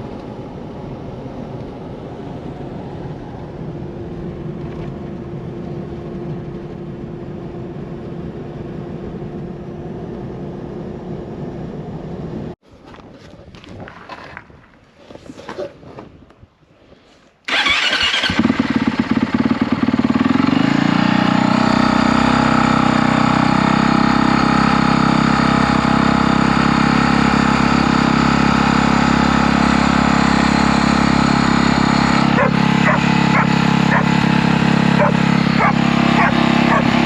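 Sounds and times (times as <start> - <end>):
vehicle engine starting and idling: 17.5 - 37.0.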